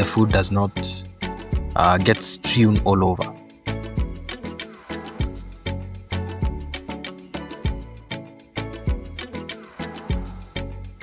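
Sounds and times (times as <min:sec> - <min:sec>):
upbeat music with drums and bass: 0:00.0 - 0:11.0.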